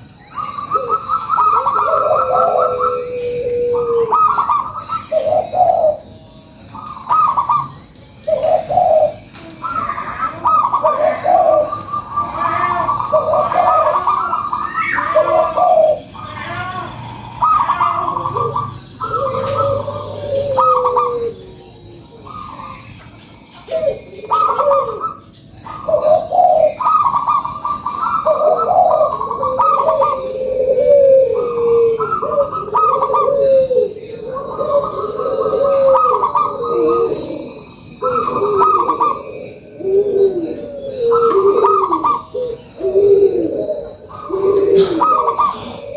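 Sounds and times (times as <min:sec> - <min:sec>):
dove cooing song: 0:00.0 - 0:45.9.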